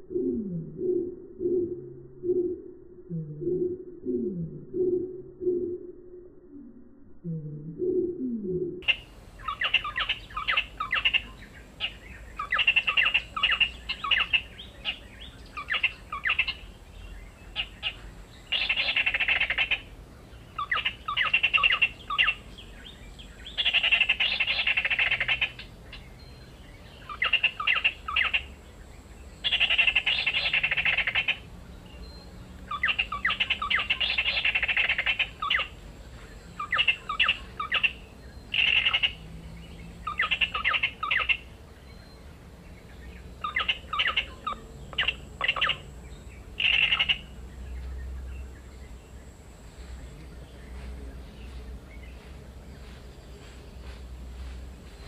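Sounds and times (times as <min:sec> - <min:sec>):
bird calling and chattering: 0:07.8 - 0:16.8, 0:17.5 - 0:26.4, 0:27.0 - 0:28.6, 0:29.4 - 0:39.3, 0:40.0 - 0:47.9.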